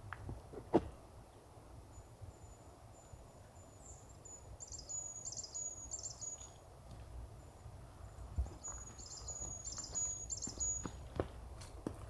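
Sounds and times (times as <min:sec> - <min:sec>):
faint low background noise: 0:00.0 - 0:12.0
small bird singing: 0:01.9 - 0:06.6, 0:07.4 - 0:11.1.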